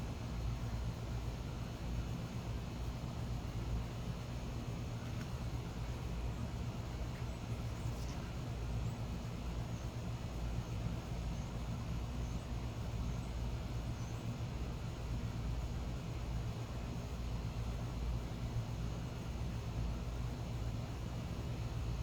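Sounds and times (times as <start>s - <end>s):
low background rumble: 0.0s - 15.0s
small birds chirping: 3.5s - 14.6s.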